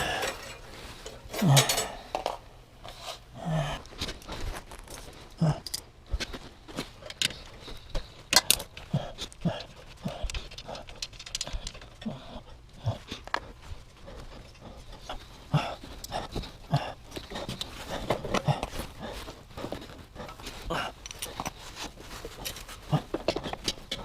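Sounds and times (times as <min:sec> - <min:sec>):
hand tools clinking on metal: 0:00.0 - 0:02.4, 0:04.9 - 0:05.9, 0:07.0 - 0:12.1, 0:20.2 - 0:24.0.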